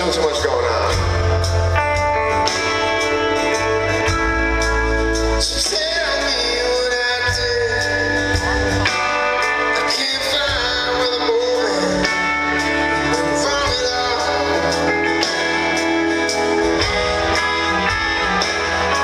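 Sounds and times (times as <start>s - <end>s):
bass guitar: 0.0s - 19.0s
guitar: 0.0s - 19.0s
steady drum beat: 0.0s - 19.0s
man singing: 5.4s - 19.0s.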